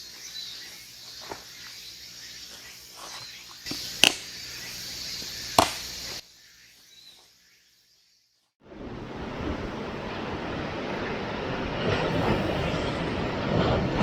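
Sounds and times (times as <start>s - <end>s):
steady high hiss: 0.0s - 8.1s
sharp knocks: 5.6s - 5.8s.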